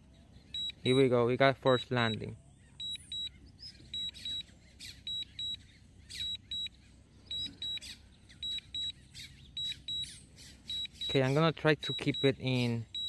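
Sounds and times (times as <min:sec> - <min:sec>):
high double beeps: 0:00.6 - 0:01.1, 0:01.7 - 0:03.3, 0:03.9 - 0:04.5, 0:07.3 - 0:09.0, 0:09.6 - 0:13.0.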